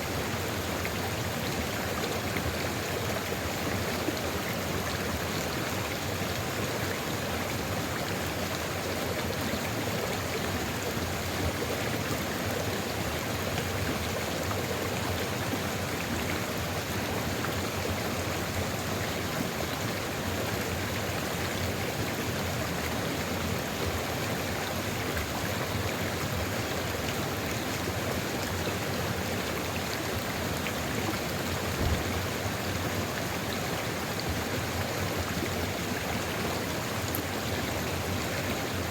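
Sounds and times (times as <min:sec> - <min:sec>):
stream flowing over rocks: 0:00.0 - 0:38.9
low thump: 0:31.7 - 0:32.2.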